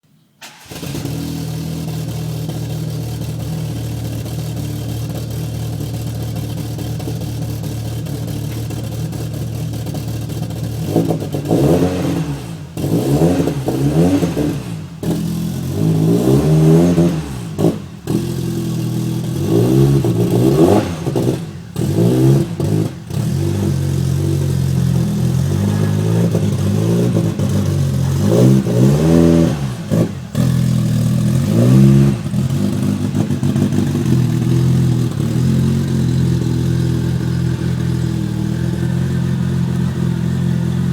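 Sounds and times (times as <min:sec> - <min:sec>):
car engine starting and idling: 0:00.2 - 0:40.9
engine revving in quick blips: 0:10.8 - 0:38.0.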